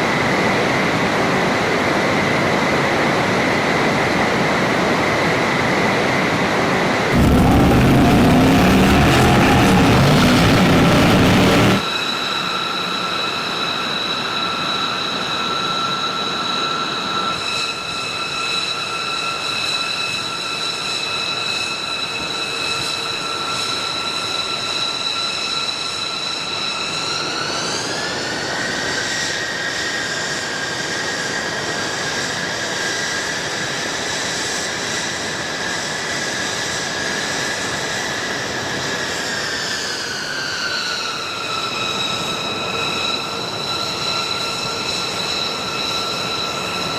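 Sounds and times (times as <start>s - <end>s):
jet engines whining: 7.1s - 11.8s
rushing noise: 7.1s - 11.8s.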